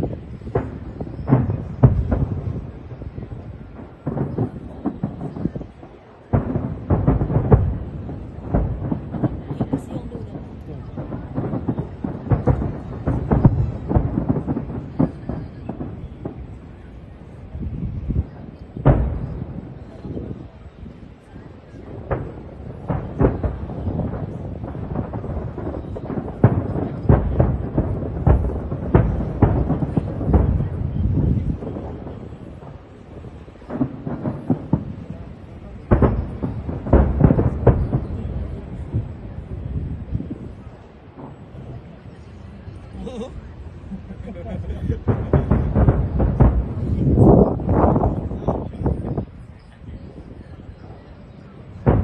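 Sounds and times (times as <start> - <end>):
fireworks bursting with rumble: 0.0 - 52.0.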